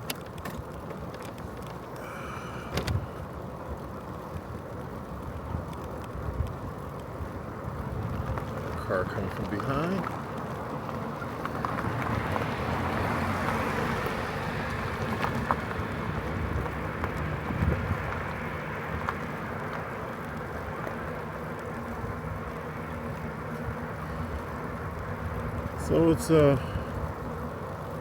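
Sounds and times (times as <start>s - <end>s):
tricycle rolling noise: 0.0s - 28.0s
car passing: 7.6s - 28.0s.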